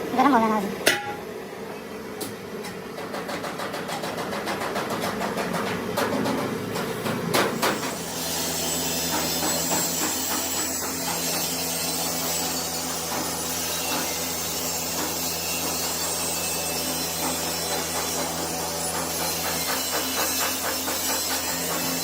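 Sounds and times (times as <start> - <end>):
power tool rasping: 7.6 - 22.0.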